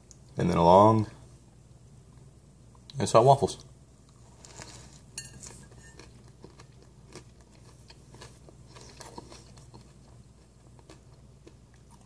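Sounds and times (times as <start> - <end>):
faint low hum: 0.0 - 12.0
chewing with mouth clicks: 4.0 - 12.0.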